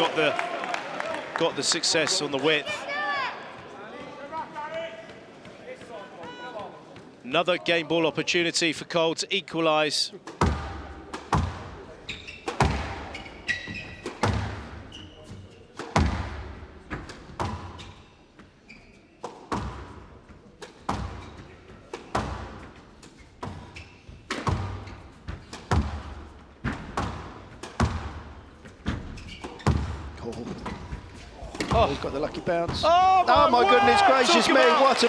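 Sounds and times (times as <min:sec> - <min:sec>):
shoes squeaking on court floor: 0:03.5 - 0:07.3, 0:10.2 - 0:35.0
squash ball smacking off walls: 0:10.3 - 0:15.0, 0:15.8 - 0:18.0, 0:19.2 - 0:20.0, 0:20.6 - 0:22.7, 0:24.3 - 0:32.9.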